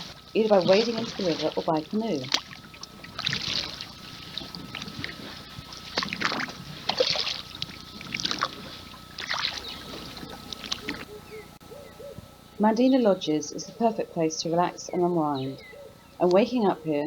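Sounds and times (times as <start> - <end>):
paddle strokes splashing water: 0.0 - 11.3
faint high whine: 0.0 - 17.0.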